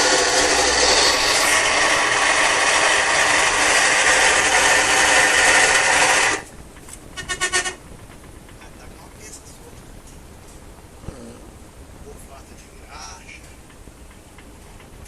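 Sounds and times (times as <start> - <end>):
washing machine grinding and squealing: 0.0 - 6.5, 7.2 - 7.8.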